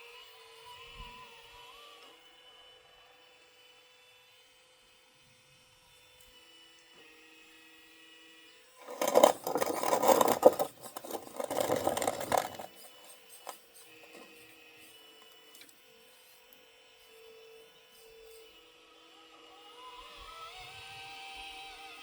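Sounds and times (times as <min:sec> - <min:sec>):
faint motor whine: 0:06.0 - 0:22.0
metallic rattling and scraping: 0:08.8 - 0:14.3.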